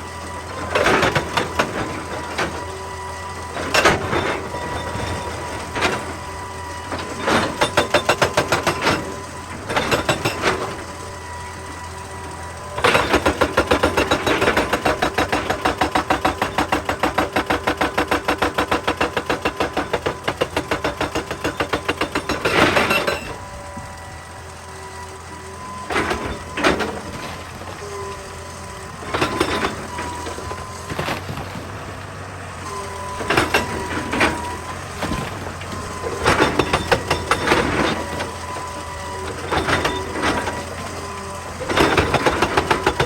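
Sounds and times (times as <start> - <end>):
hydraulic breaker hammering rock: 0.5 - 24.0, 25.4 - 32.0, 32.6 - 43.0.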